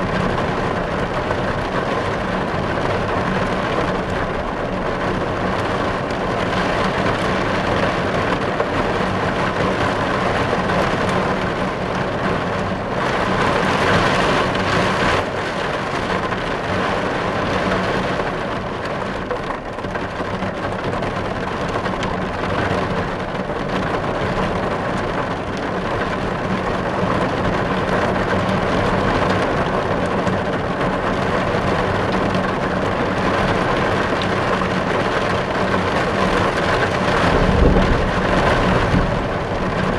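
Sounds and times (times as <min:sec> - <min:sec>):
heavy rain on car roof: 0:00.0 - 0:39.9.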